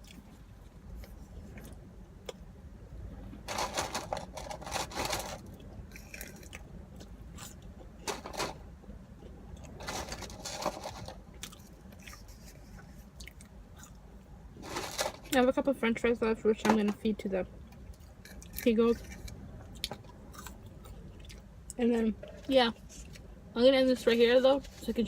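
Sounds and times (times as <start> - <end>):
chewing and biting food: 11.4 - 14.0, 19.6 - 21.5.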